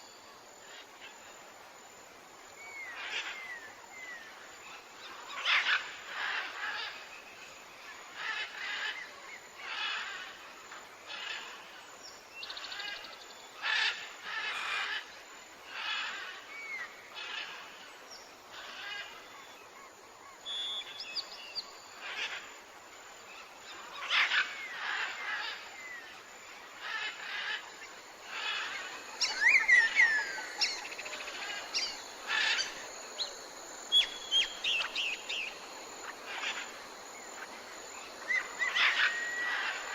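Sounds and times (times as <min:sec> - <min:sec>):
whistled bird chirps: 0:20.4 - 0:21.7
wild birds calling: 0:23.4 - 0:39.9.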